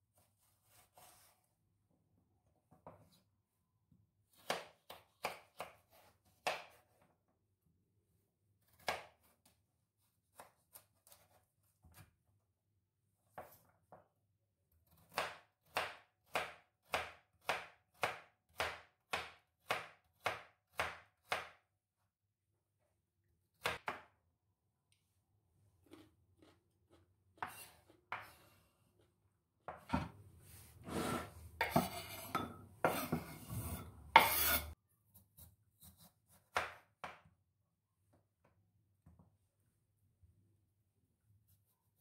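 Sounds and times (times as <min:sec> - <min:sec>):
knife chopping on cutting board: 0:04.3 - 0:06.9, 0:14.9 - 0:21.6, 0:30.9 - 0:34.8.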